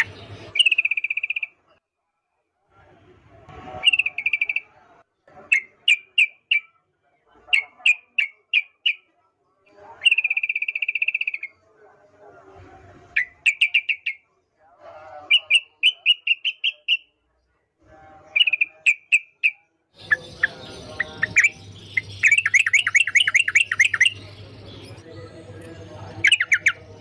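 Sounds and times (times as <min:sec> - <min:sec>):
bulbul singing sharp chirps: 0:00.0 - 0:01.8, 0:03.6 - 0:04.8, 0:09.8 - 0:11.6, 0:13.1 - 0:14.3, 0:15.3 - 0:17.2, 0:18.3 - 0:27.0
soft chattering bird notes: 0:18.3 - 0:27.0.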